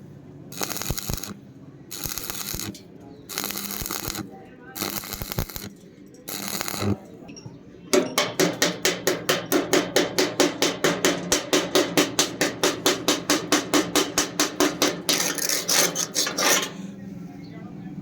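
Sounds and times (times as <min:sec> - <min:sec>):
hammer striking metal: 0:07.9 - 0:16.8
scraping rasping sound: 0:14.1 - 0:16.9.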